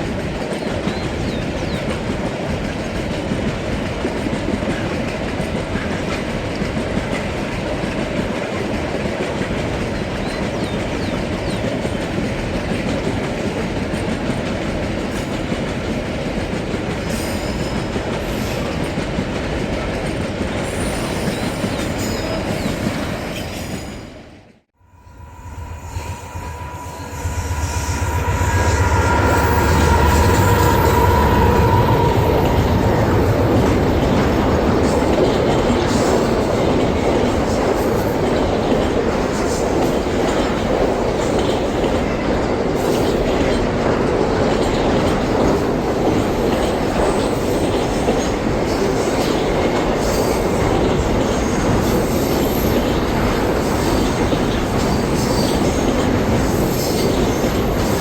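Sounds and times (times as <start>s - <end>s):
train wheel squeal: 0.0s - 2.8s, 17.0s - 19.2s, 20.5s - 58.0s
wagons clickety-clack on rail joints: 0.0s - 23.9s, 29.8s - 58.0s
locomotive engine hum and whine: 24.8s - 36.0s.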